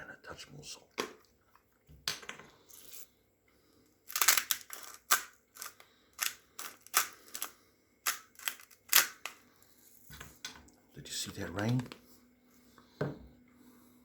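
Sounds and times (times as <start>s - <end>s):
salt grinder crunching: 4.1s - 9.4s.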